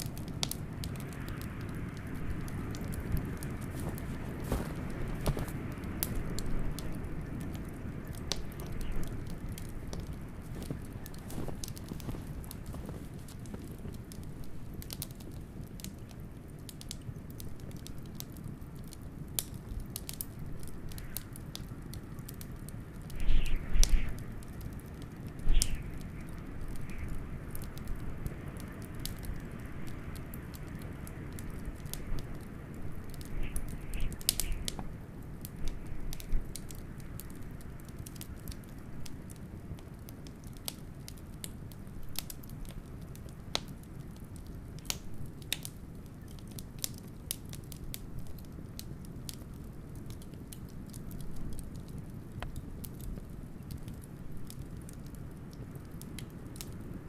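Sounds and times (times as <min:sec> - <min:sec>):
blizzard wind rushing: 0:00.0 - 0:16.4, 0:19.7 - 0:39.0
wood fire crackling and popping: 0:00.0 - 0:57.0.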